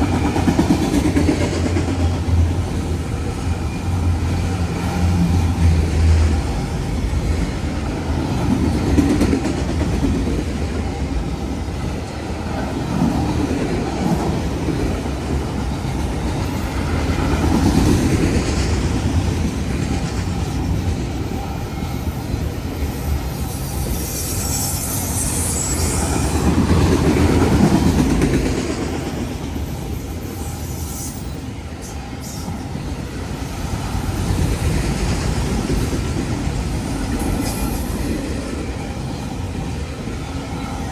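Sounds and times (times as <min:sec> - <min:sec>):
train wheels rumbling on rails: 0:00.0 - 0:40.9
wheel squeal: 0:21.3 - 0:26.6, 0:29.7 - 0:32.6.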